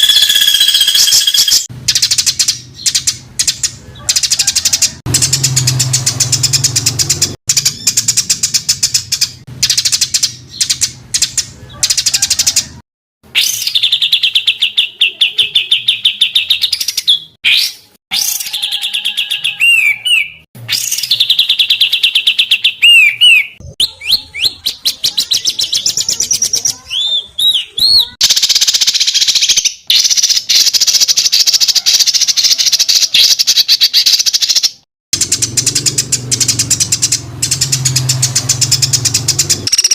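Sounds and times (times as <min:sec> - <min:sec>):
songbirds singing rapid trills: 0:00.0 - 0:12.8, 0:13.4 - 0:39.9.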